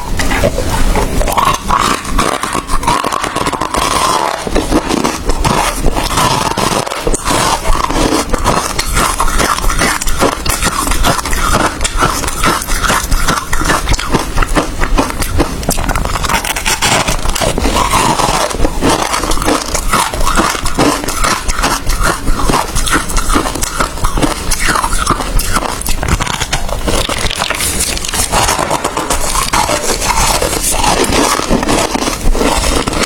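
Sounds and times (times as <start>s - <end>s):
chewing crushed ice: 0.0s - 33.0s.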